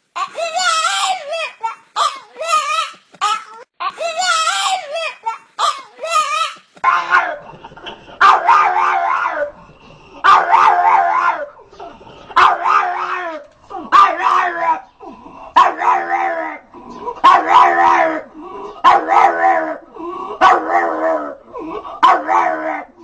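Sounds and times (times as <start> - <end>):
dog howling barks: 6.8 - 7.4, 8.2 - 9.5, 10.2 - 11.6, 12.4 - 14.8, 15.6 - 16.6, 17.2 - 19.8, 20.4 - 21.4, 22.0 - 23.0.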